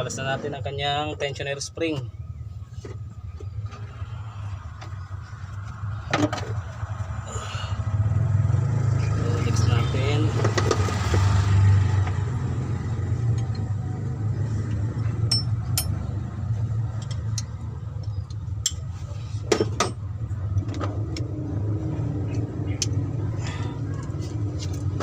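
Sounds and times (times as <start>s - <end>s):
metal tools clinking: 15.2s - 16.0s.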